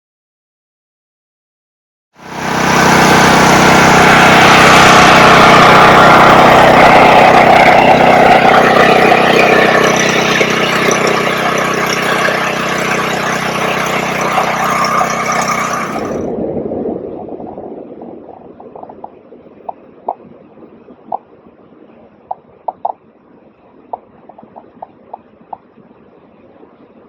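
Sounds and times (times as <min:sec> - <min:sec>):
engine running loud: 0:02.2 - 0:20.2.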